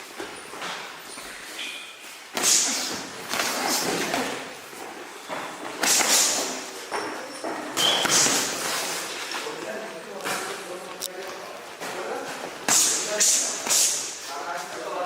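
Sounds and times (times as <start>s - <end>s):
thuds echoing in gym: 5.3s - 8.8s.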